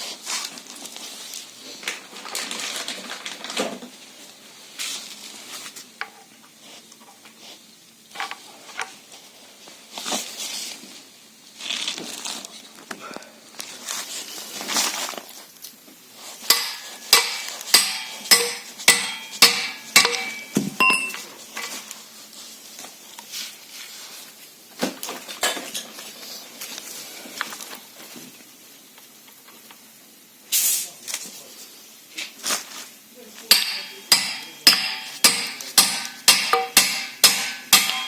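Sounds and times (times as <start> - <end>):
ringing metal-on-metal taps: 16.5 - 21.2, 33.5 - 38.0
steel parts clinking: 16.5 - 21.2, 33.5 - 38.0.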